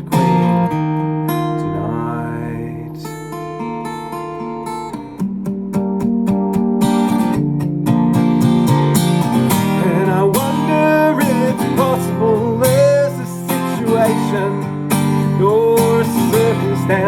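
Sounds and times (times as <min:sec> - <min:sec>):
person singing: 0:00.0 - 0:00.8, 0:01.4 - 0:03.3, 0:09.7 - 0:17.0
acoustic guitar strumming: 0:00.0 - 0:17.0.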